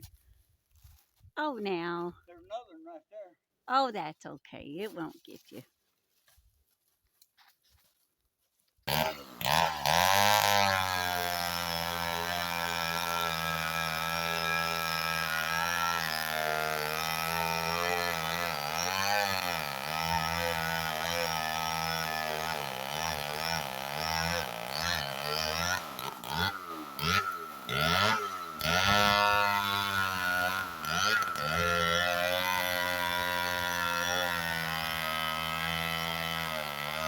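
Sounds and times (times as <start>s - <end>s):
chainsaw cutting wood: 8.8s - 37.0s.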